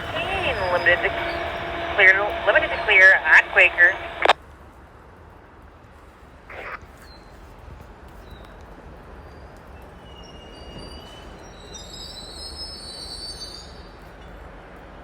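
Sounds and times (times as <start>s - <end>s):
low train rumble: 0.0s - 6.7s
train wheels squealing: 9.2s - 15.0s.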